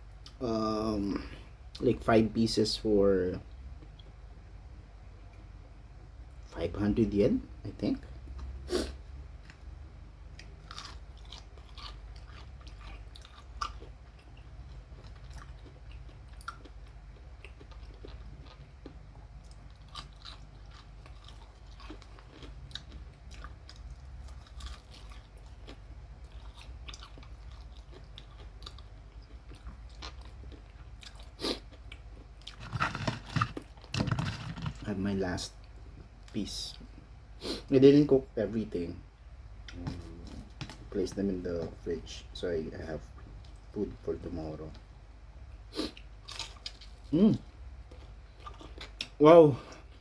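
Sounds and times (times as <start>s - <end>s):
low steady hum: 0.0s - 50.0s
person chewing crispy chicken: 10.3s - 34.8s, 45.8s - 47.3s, 47.9s - 50.0s.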